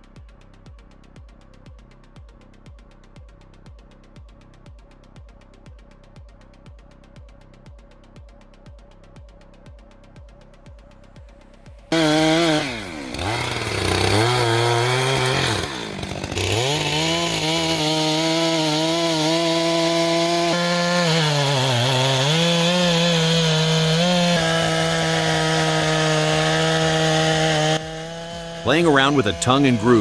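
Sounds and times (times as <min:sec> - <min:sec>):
chainsaw cutting wood: 0:11.9 - 0:30.0.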